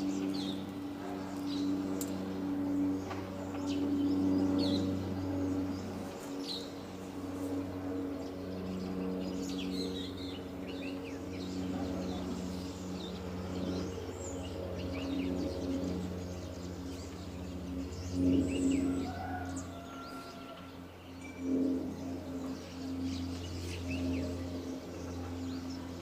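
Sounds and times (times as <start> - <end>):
low drone with held tones: 0.0 - 26.0.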